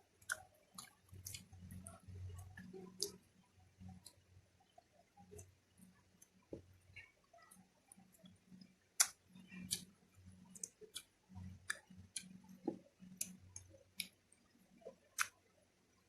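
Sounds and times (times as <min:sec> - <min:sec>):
mouth clicks and smacks: 0:00.2 - 0:03.2, 0:09.0 - 0:14.2, 0:14.9 - 0:15.4
person chewing: 0:00.2 - 0:03.2, 0:09.0 - 0:09.9.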